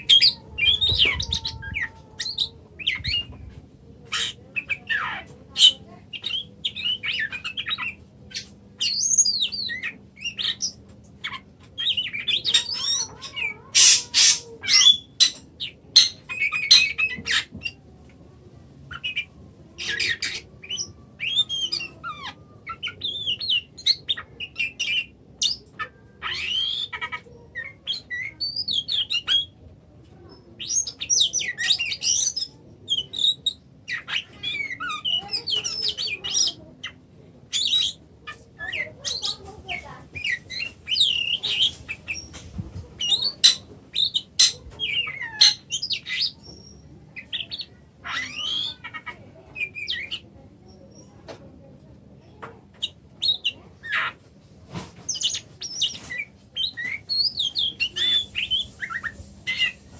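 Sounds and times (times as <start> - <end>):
harsh rasping bird calls: 0.0 - 3.4, 4.1 - 17.8, 18.9 - 29.6, 30.6 - 42.4, 43.0 - 50.2, 55.1 - 59.8
bird singing whistled phrases: 19.9 - 23.7.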